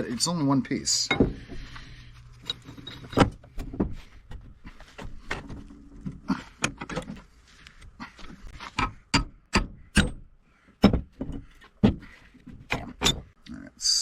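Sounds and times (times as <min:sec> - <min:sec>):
pipe wrench clanking on metal: 0:01.0 - 0:04.4, 0:08.6 - 0:13.3.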